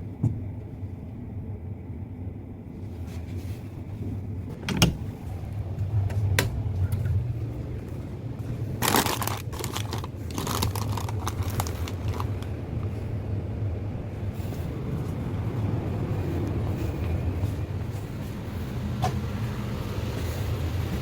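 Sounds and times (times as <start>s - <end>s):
low machine hum: 0.0s - 21.0s
rustling and crinkling: 2.8s - 13.1s.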